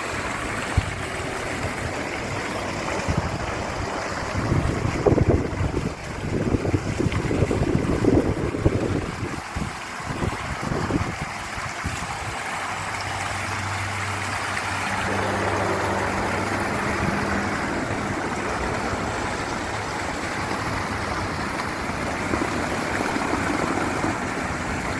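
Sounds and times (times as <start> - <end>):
water pouring down waterfall: 0.0 - 24.9
low hum: 13.3 - 24.4.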